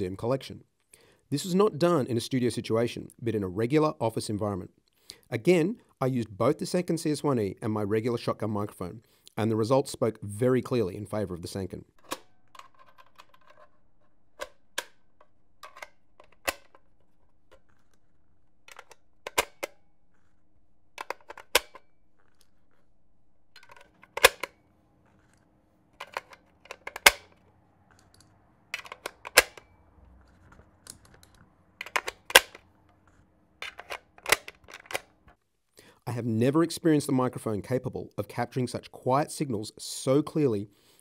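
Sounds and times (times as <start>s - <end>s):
firearm mechanisms clicking: 11.9s - 35.4s.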